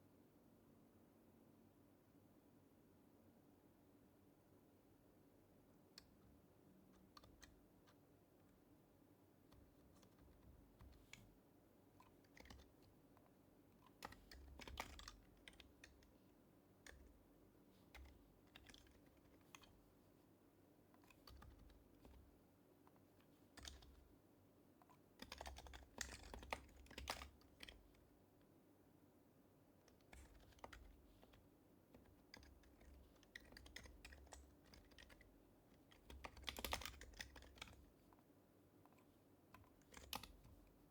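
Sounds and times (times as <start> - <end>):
faint keyboard typing: 5.7 - 28.6, 29.5 - 40.9.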